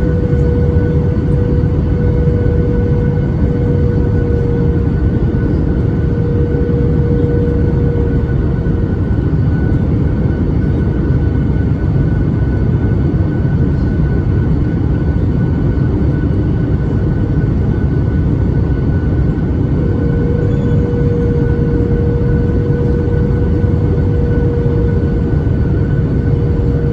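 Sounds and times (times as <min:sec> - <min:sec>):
low hum: 0:00.0 - 0:11.9, 0:18.7 - 0:26.9
airplane cabin engine rumble: 0:00.0 - 0:26.9
steady whine: 0:00.0 - 0:26.9.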